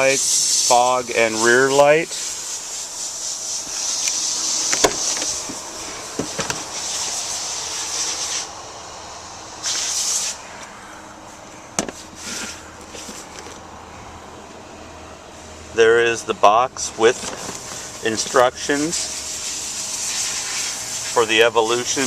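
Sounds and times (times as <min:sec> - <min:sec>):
rustling and handling noise: 0:03.4 - 0:07.2, 0:11.3 - 0:13.7, 0:17.1 - 0:17.9
sharp clicks and knocks: 0:04.0 - 0:05.6, 0:06.2 - 0:06.7.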